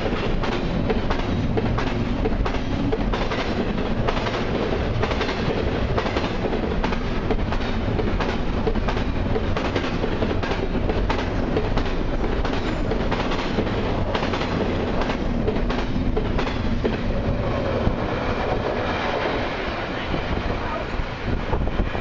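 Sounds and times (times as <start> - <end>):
wheels clicking over rail joints: 0.0 - 17.4
steel wheels rumbling on rail: 0.0 - 22.0.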